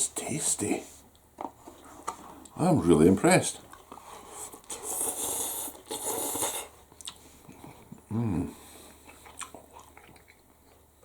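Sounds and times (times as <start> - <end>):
man making breathy hissing noises: 4.7 - 6.8
man humming: 8.1 - 8.6.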